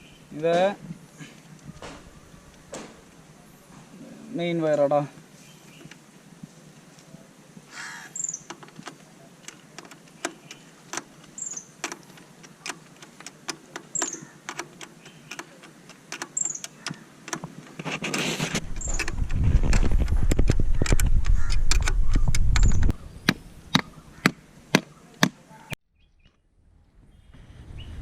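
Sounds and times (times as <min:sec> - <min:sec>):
metallic clicks and taps: 0:08.5 - 0:17.5, 0:20.0 - 0:23.9.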